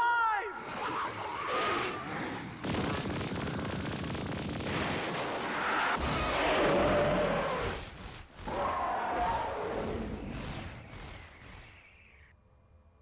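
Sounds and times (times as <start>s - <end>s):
explosions crackling rumble: 2.4s - 8.6s.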